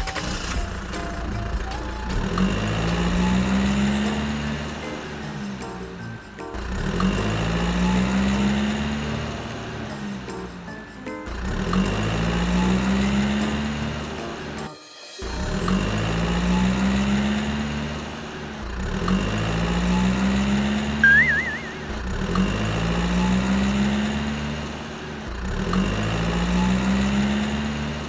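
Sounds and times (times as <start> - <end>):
engine revving up: 0.0 - 5.6, 6.6 - 14.6, 15.2 - 28.0
warbling whistle: 21.0 - 22.0.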